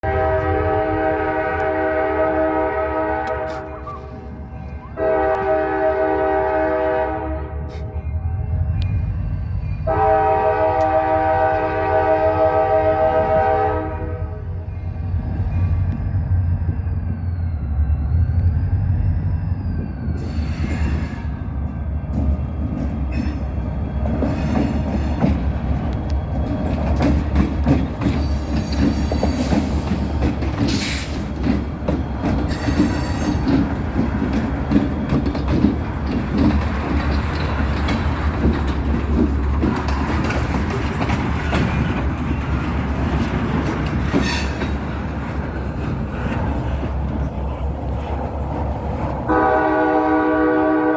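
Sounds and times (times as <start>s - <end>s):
train rumbling past: 0.0s - 50.9s
wheels clattering over rails: 21.6s - 49.3s.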